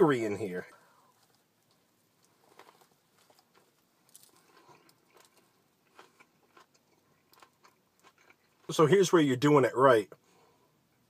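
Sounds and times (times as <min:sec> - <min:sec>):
person chewing sandwich: 0:00.9 - 0:08.7.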